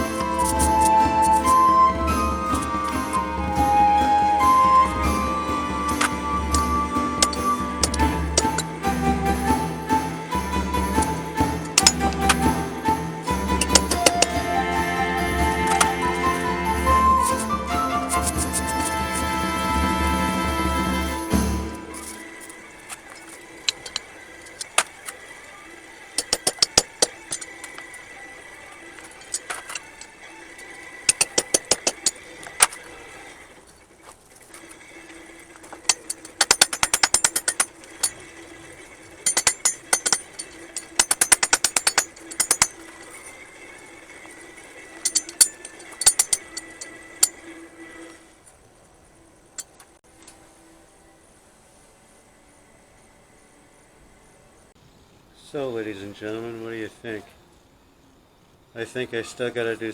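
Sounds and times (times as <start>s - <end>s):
hammer striking steel on anvil: 5.9s - 19.3s, 26.2s - 27.9s, 31.1s - 32.8s, 35.6s - 38.2s, 39.2s - 43.3s, 45.0s - 47.4s.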